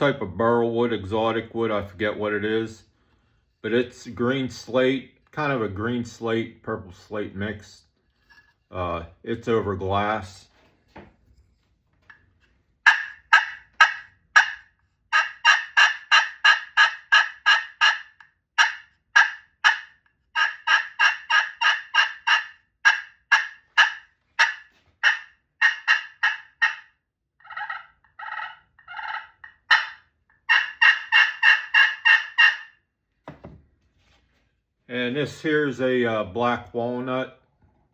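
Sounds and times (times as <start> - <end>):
turkey call yelping notes: 12.8 - 26.8, 27.4 - 32.7.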